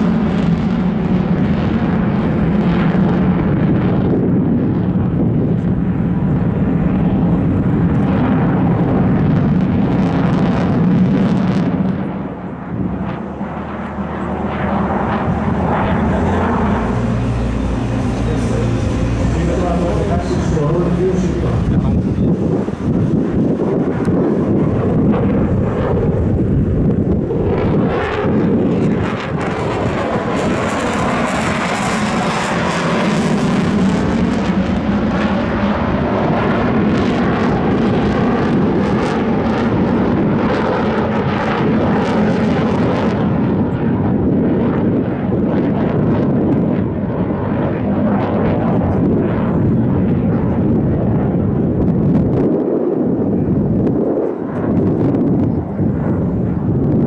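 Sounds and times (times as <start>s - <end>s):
airplane engine flying past: 0.0s - 57.0s.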